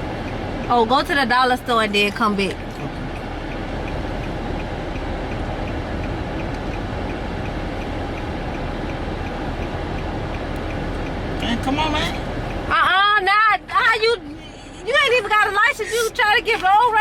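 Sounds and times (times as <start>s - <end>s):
engine and tyre rumble: 0.0s - 17.0s
faint regular ticking: 0.1s - 13.2s.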